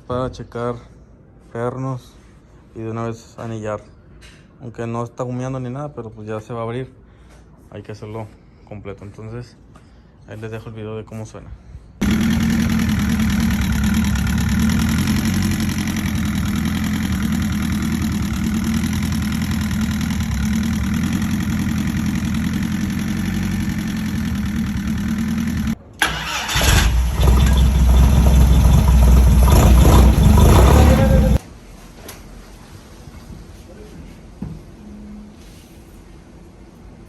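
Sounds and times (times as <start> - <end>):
car engine running: 12.0 - 31.4.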